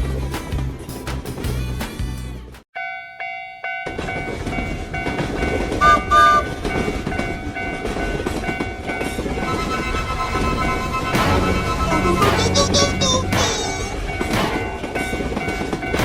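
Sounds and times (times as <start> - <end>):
train rumble and clickety-clack: 0.0 - 2.1, 3.9 - 16.0
railroad crossing bell ringing: 2.8 - 16.0
train horn toots: 5.8 - 6.7, 9.3 - 14.4.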